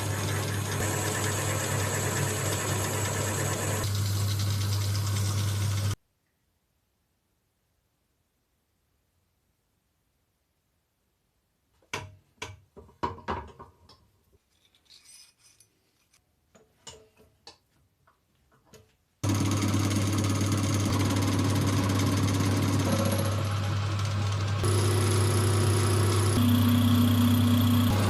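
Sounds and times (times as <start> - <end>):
power tool motor humming: 0.0 - 4.2, 19.2 - 28.0
tools knocking and clicking: 16.5 - 17.7.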